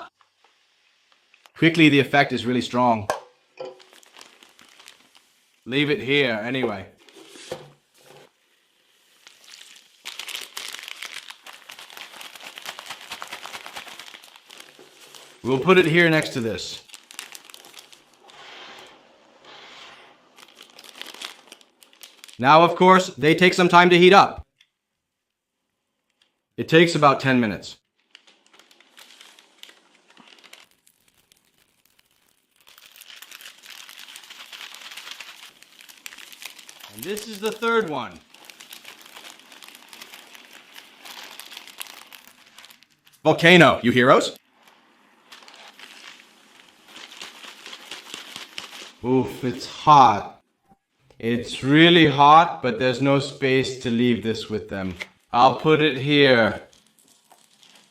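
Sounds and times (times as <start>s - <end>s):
plastic bag crinkling: 3.4s - 22.8s, 27.8s - 49.8s, 56.0s - 57.9s.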